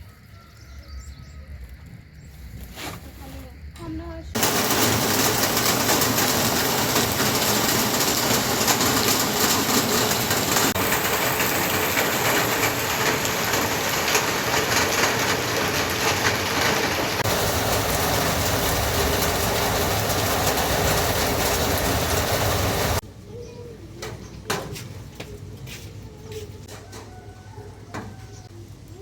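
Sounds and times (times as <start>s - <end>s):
heavy rain falling: 4.4s - 23.0s.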